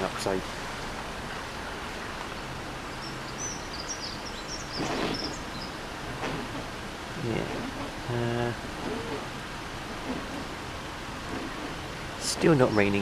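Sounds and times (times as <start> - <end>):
outdoor background hiss: 0.0 - 13.0
small birds chirping: 1.2 - 6.6, 11.4 - 13.0
soft rustle: 7.4 - 12.7.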